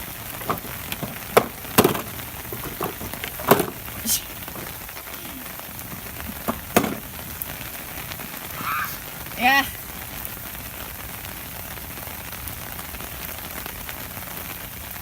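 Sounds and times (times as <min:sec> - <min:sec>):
steady rain falling: 0:00.0 - 0:15.0
sharp taps and knocks: 0:00.4 - 0:04.8, 0:05.9 - 0:07.1.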